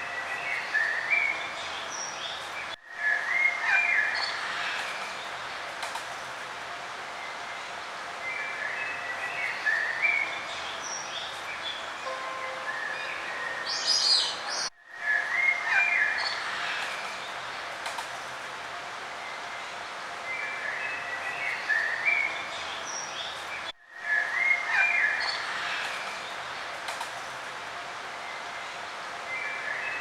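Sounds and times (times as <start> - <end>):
steady outdoor hiss: 0.0 - 30.0
songbirds chirping: 6.8 - 26.8.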